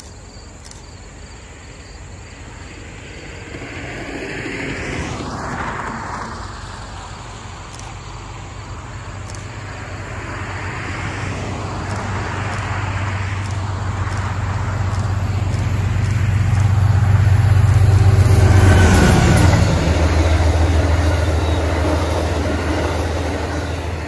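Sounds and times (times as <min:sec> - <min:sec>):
diesel locomotive engine drone: 0:00.0 - 0:24.0
road traffic passing: 0:00.0 - 0:24.0.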